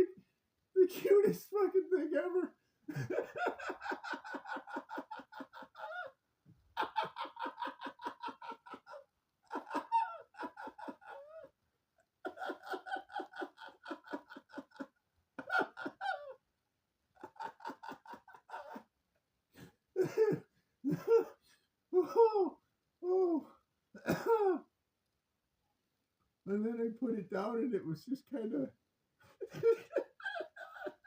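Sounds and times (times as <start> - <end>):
person laughing hard: 1.9 - 11.5, 12.2 - 16.4, 17.2 - 18.9, 20.0 - 21.4, 22.0 - 24.6, 29.4 - 31.0.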